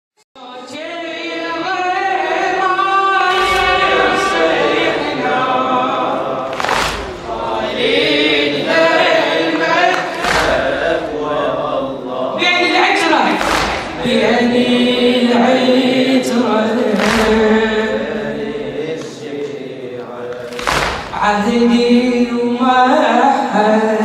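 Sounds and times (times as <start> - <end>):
choir chanting in unison: 0.4 - 24.0
deep thump: 13.4 - 14.1.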